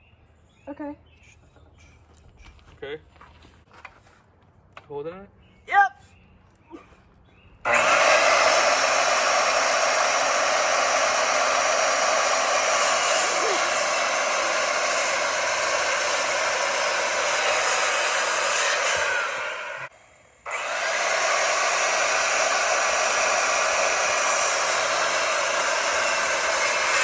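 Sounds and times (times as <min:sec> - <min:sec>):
power tool cutting wood: 0:07.6 - 0:27.0.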